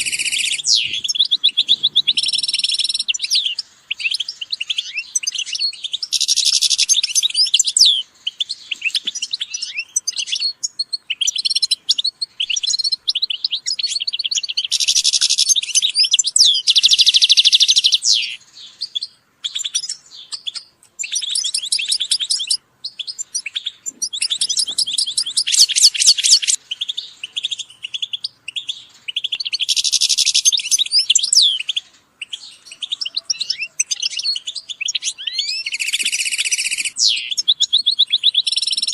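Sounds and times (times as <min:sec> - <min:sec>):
finches twittering: 0:00.0 - 0:08.0, 0:19.5 - 0:26.6.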